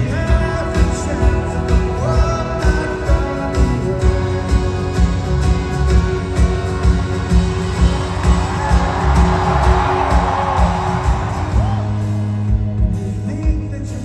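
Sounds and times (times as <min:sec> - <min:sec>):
guitar and keyboard chords: 0:00.0 - 0:14.0
live rock band playing: 0:00.0 - 0:14.0
steady drum beat: 0:00.0 - 0:14.0
crowd cheering and whooping: 0:05.9 - 0:12.6.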